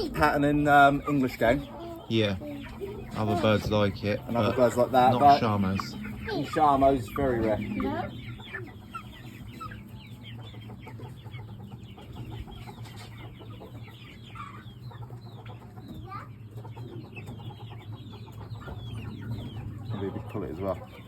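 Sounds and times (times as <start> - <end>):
chickens clucking and calling: 0.0 - 21.0.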